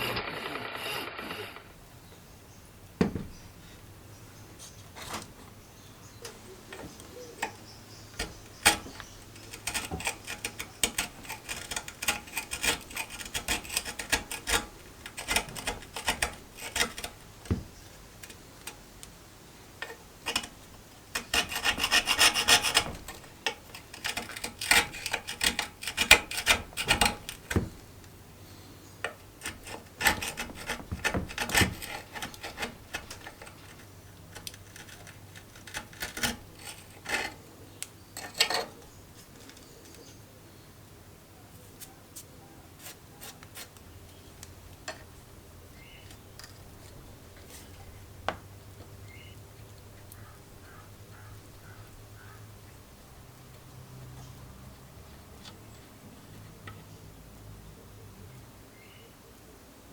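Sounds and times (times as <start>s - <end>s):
clicks and knocks: 2.9s - 3.6s, 6.2s - 19.2s, 19.8s - 28.2s, 29.0s - 37.4s
rasping scrapes on iron stove: 6.3s - 37.5s, 38.2s - 38.8s.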